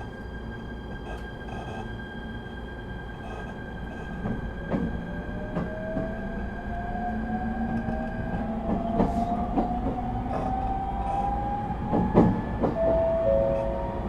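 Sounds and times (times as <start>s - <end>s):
electric train inverter whine: 0.0s - 14.0s
train running gear rumble: 0.0s - 14.0s
steady high tone: 12.4s - 14.0s.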